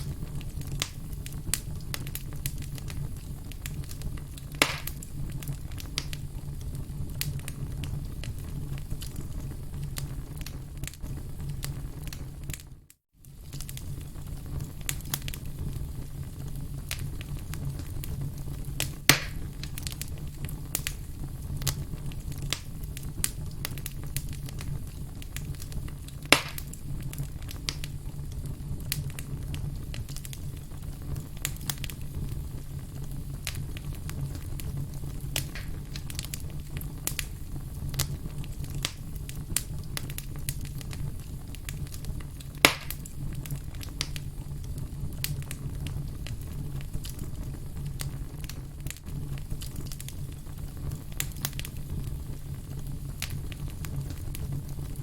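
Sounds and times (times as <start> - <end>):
campfire crackling: 0.0 - 55.0
low rumble of flames: 0.0 - 55.0
sharp pops of fire: 0.0 - 55.0.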